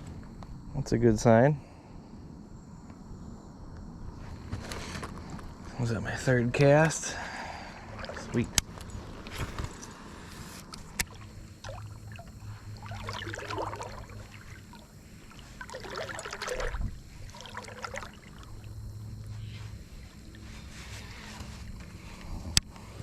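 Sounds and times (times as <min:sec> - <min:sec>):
low steady hum: 0:00.0 - 0:23.0
water splashing and lapping: 0:07.5 - 0:21.6.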